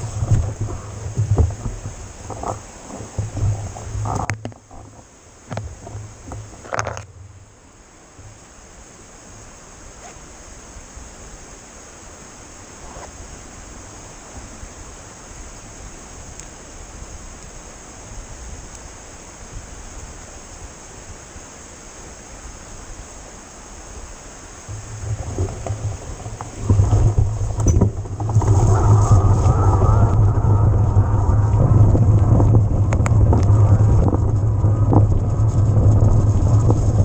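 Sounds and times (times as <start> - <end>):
faint ticks: 0.0 - 7.2, 16.3 - 16.6, 18.7 - 18.9, 24.7 - 37.0
wind and tyres rushing: 0.0 - 37.0.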